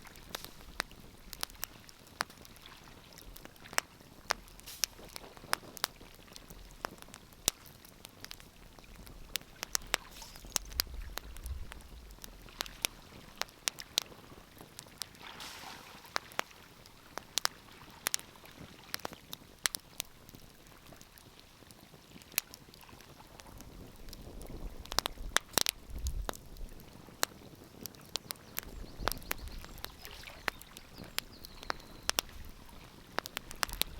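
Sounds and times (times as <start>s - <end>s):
wood fire crackling: 0.0s - 33.9s
low rumbles: 8.6s - 13.3s.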